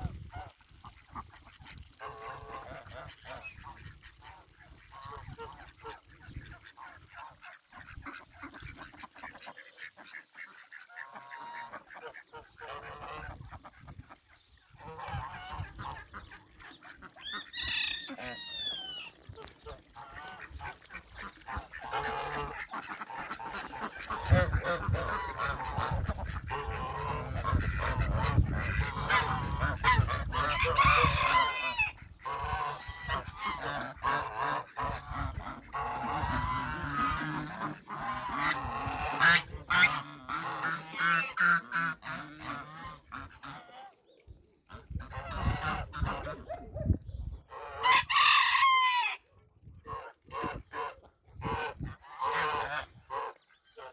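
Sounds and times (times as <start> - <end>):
poultry calling: 14.8 - 44.0.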